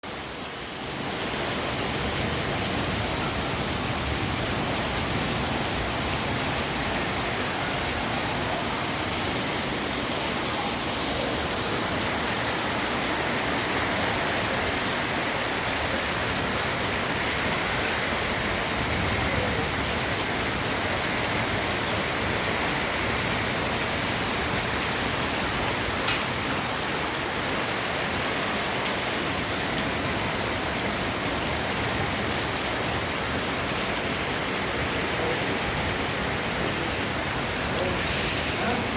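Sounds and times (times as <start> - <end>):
heavy rain pouring: 0.0 - 38.9
rainwater rushing along street: 0.0 - 38.9.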